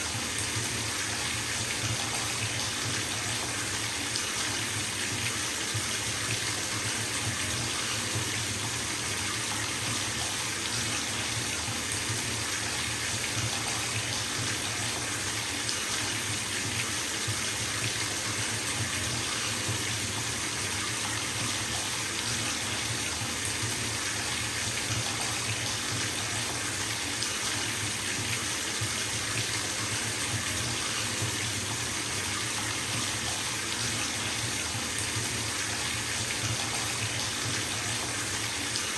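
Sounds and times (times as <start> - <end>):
tap water pouring into bathtub: 0.0 - 38.9.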